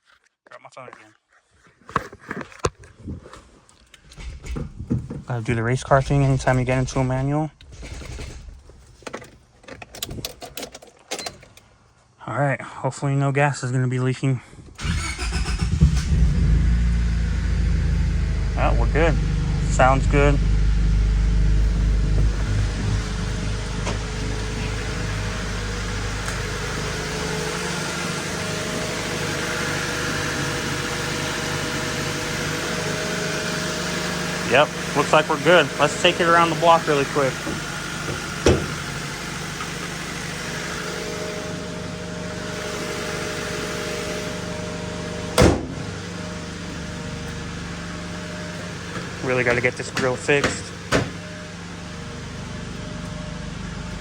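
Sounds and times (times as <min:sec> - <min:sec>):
car engine idling: 0:04.0 - 0:10.1, 0:14.8 - 0:54.0
heavy slam: 0:05.9 - 0:09.6.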